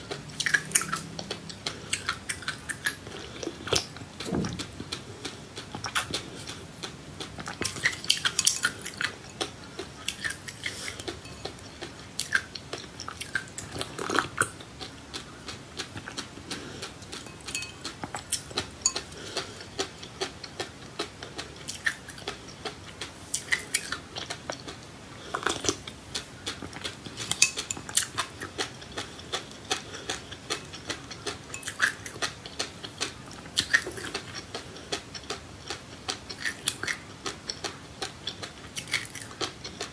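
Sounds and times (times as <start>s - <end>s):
crisp chewing of seeds: 0.0s - 39.9s
utensil clinking against dish: 11.2s - 11.6s, 17.2s - 19.1s, 27.2s - 28.2s, 31.5s - 32.1s.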